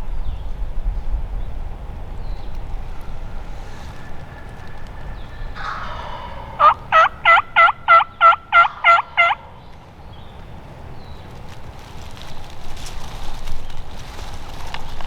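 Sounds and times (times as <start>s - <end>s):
wind: 0.0s - 15.0s
turkey yelps: 3.7s - 9.6s
rain: 9.8s - 15.0s.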